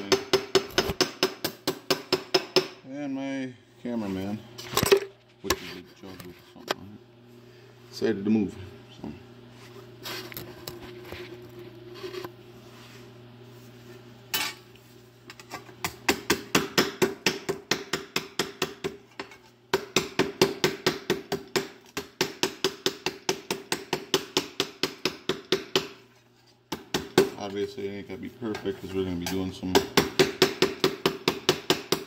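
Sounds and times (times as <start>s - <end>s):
hammer tapping sheet steel: 0.0s - 2.8s.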